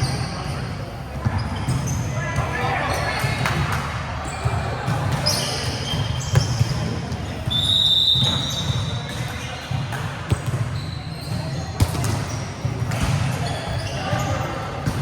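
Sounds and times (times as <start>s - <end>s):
ball bouncing on hard court: 3.2s - 7.3s, 8.2s - 15.0s.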